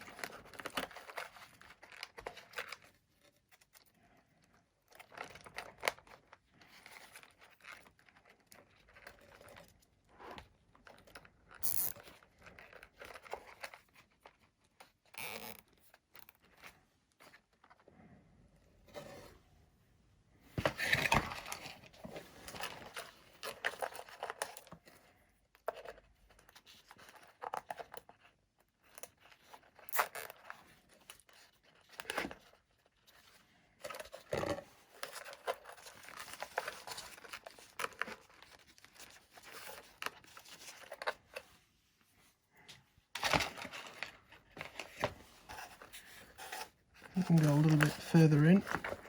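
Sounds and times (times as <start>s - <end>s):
hands rustling with wiring: 34.8s - 49.0s.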